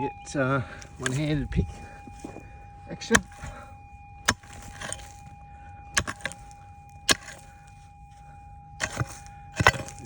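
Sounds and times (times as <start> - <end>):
loose dirt and rocks rattling: 0.3 - 10.0
pick striking stony ground: 0.8 - 10.0.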